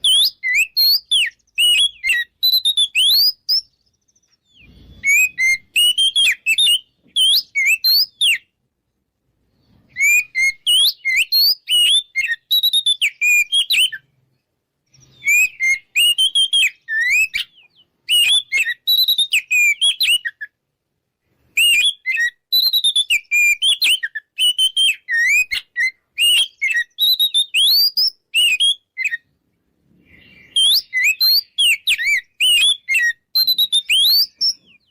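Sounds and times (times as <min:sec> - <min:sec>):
bird singing whistled song: 0:00.0 - 0:08.6, 0:09.5 - 0:20.6, 0:21.4 - 0:29.4, 0:30.0 - 0:34.9.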